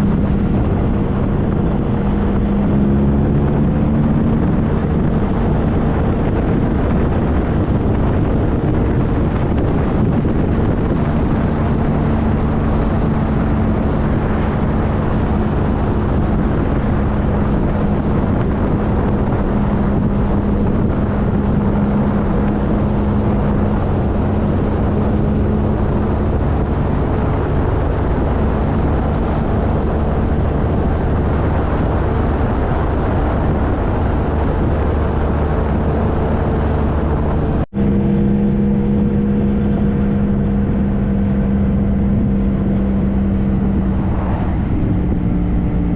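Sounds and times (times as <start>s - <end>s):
motorcycle engine cruising: 0.0s - 45.9s
riding wind rush: 0.0s - 45.9s.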